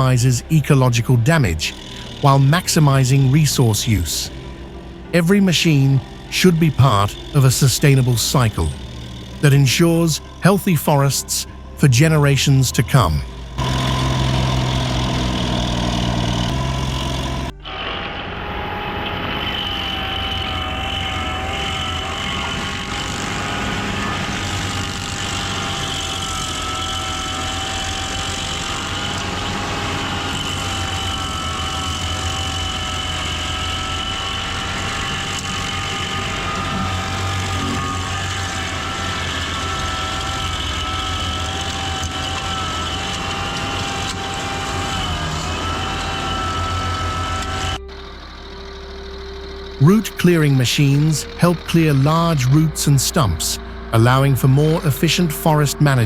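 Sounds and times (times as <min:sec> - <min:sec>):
heavy machine engine running: 0:00.0 - 0:56.0
wavering whine: 0:00.0 - 0:56.0.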